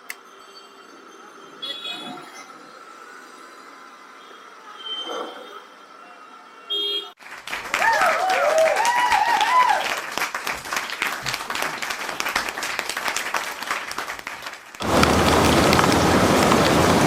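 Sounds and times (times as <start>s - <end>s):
rain pattering: 8.8s - 17.0s
heavy rain hissing: 14.8s - 17.0s.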